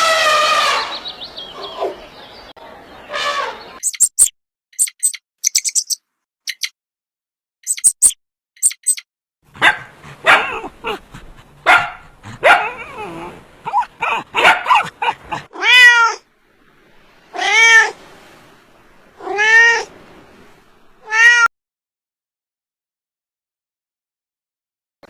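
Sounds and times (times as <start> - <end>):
cat meowing: 15.4 - 16.2, 17.3 - 18.0, 19.2 - 19.9, 21.0 - 21.5.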